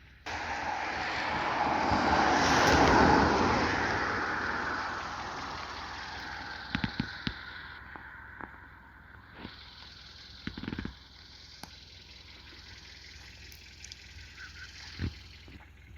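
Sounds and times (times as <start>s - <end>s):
car passing by: 0.3s - 9.6s.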